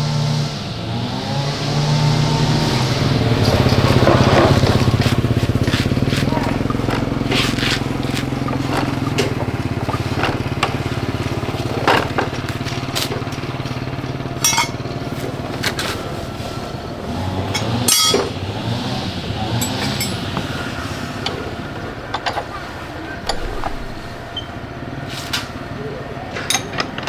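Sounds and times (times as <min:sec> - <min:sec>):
motorcycle engine running: 0:00.0 - 0:27.0
metallic clinks and knocks: 0:14.4 - 0:14.9, 0:17.5 - 0:18.4, 0:19.5 - 0:20.6, 0:26.4 - 0:27.0.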